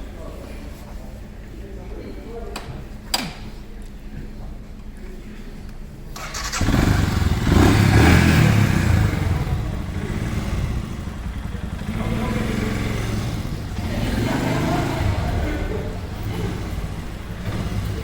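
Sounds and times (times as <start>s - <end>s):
motorcycle engine revving: 6.2s - 18.0s.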